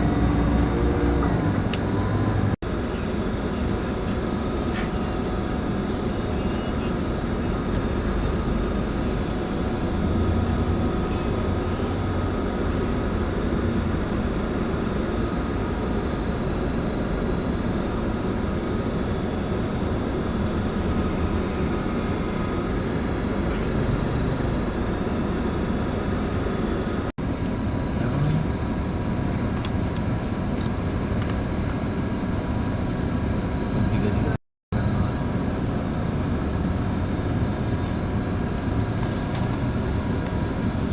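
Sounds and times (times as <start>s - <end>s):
coach engine rumble: 0.0s - 2.6s.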